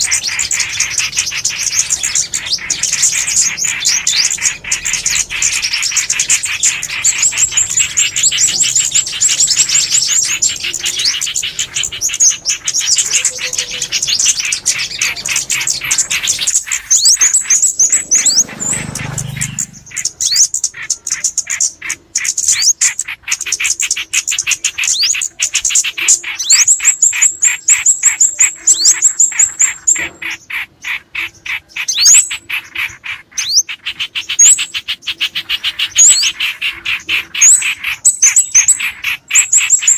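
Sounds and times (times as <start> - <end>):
songbirds chirping: 0.0 - 39.9
low rumble: 17.3 - 20.2.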